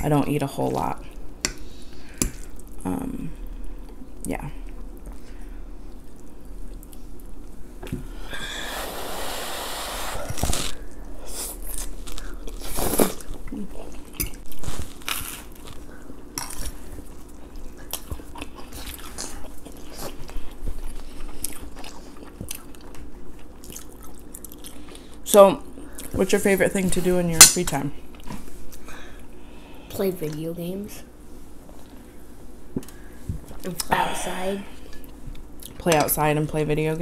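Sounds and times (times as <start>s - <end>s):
biting and chewing food: 10.3s - 25.0s.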